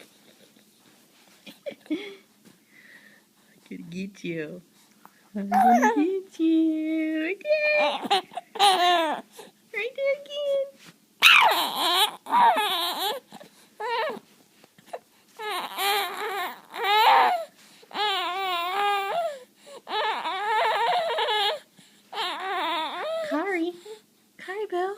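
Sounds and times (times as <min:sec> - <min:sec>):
baby warbling squeals: 0:11.2 - 0:13.2, 0:15.5 - 0:17.4, 0:22.2 - 0:23.3.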